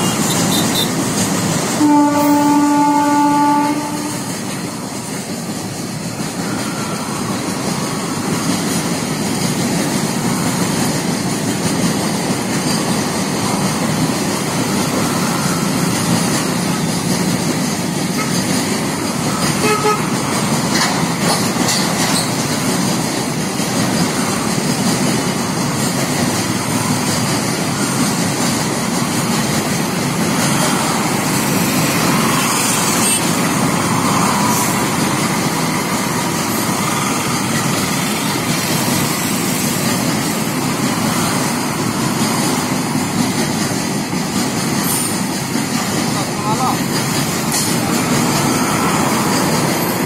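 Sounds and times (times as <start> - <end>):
freight train wheels on rails: 0.0 - 50.0.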